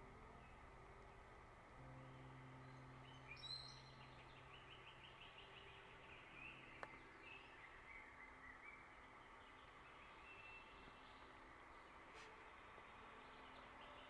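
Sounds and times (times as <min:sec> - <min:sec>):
steady low hum: 0:00.0 - 0:07.7
bird chirping: 0:02.0 - 0:11.2.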